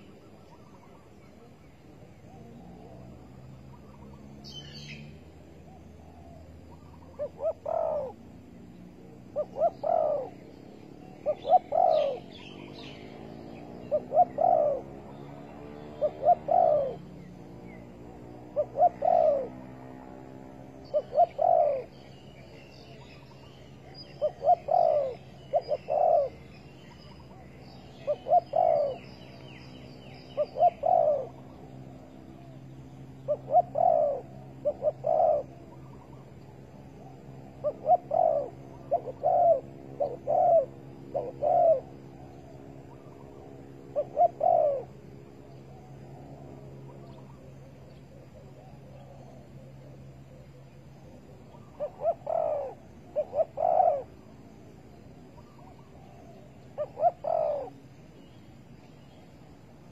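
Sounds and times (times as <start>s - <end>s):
dove cooing: 0.0s - 58.3s
small birds chirping: 0.0s - 59.9s.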